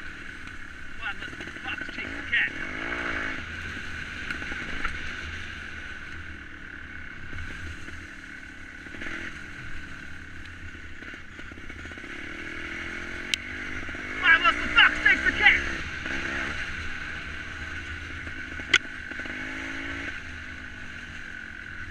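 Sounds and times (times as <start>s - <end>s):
motorcycle engine running: 0.0s - 21.9s.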